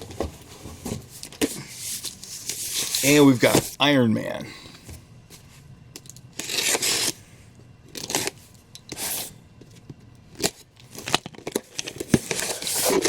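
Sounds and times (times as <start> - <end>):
paper and plastic rustling: 0.5 - 3.8, 10.5 - 13.0.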